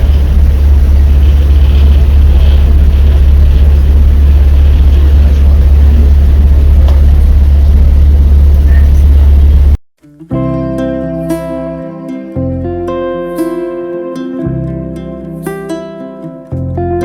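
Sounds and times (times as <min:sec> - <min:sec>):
boat engine droning: 0:00.0 - 0:09.8
plucked guitar music: 0:10.0 - 0:17.0.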